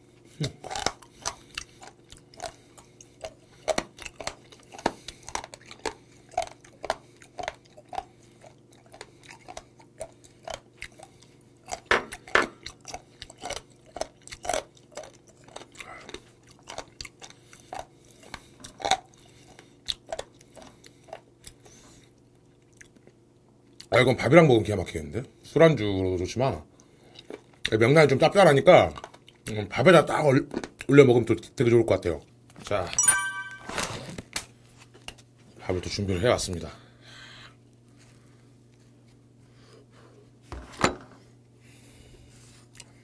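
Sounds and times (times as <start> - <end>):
chewing with teeth clicks: 0.2 - 24.0, 26.7 - 27.9, 28.7 - 29.6, 30.5 - 31.0, 42.6 - 43.0.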